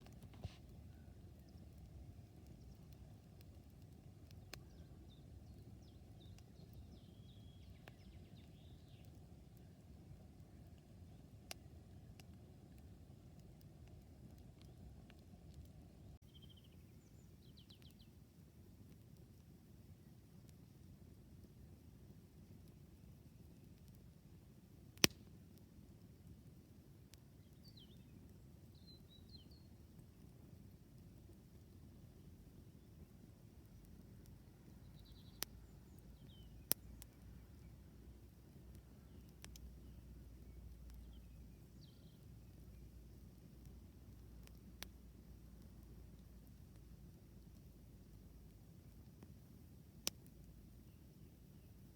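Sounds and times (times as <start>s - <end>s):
burning wood popping: 0.0s - 4.8s, 24.9s - 25.4s, 34.8s - 47.8s
campfire burning: 0.0s - 51.9s
campfire crackles and pops: 0.0s - 51.9s
faint bird chirps: 4.3s - 9.8s, 16.1s - 18.2s, 27.4s - 29.8s, 32.2s - 37.9s, 39.0s - 43.0s
small bird chirping: 34.7s - 37.8s, 39.0s - 42.9s.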